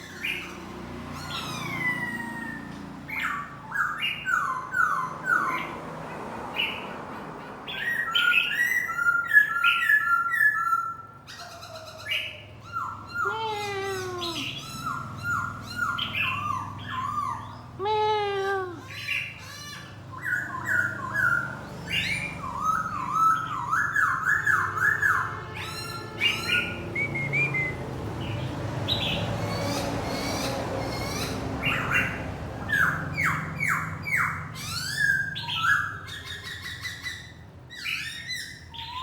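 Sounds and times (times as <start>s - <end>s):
bird singing whistled phrases: 26.9s - 27.8s.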